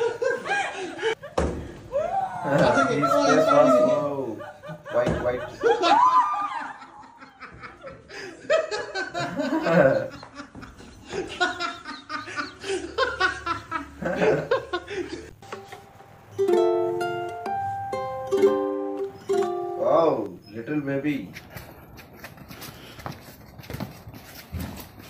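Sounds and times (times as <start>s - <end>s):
people laughing and calling out: 1.9s - 10.4s
plucked ukulele tune: 15.4s - 19.9s.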